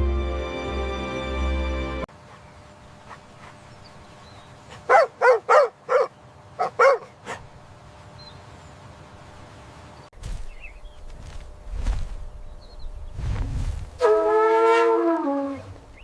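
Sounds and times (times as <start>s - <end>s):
animal barking: 4.7s - 7.5s.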